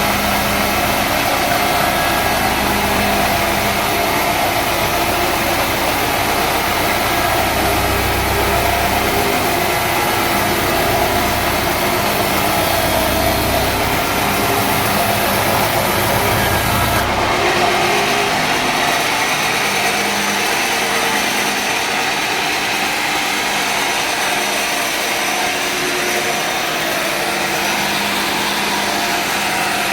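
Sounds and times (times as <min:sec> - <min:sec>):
sawmill engine idling: 0:00.0 - 0:29.9.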